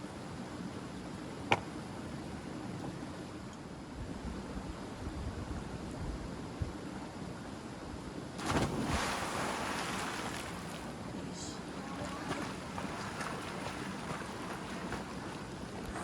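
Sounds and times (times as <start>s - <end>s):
loud water splash: 8.4s - 10.9s
swimming strokes sloshing water: 8.4s - 16.0s.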